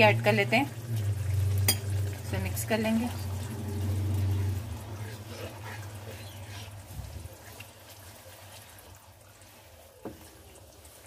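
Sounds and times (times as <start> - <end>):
wooden spoon stirring and scraping: 2.6 - 11.0.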